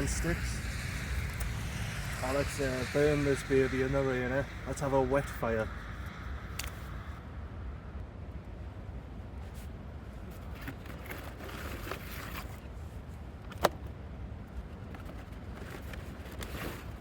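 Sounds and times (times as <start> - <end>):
fire crackling and popping: 0.0 - 7.2
fire sharp snap: 0.0 - 7.2
low rumble: 0.0 - 9.4.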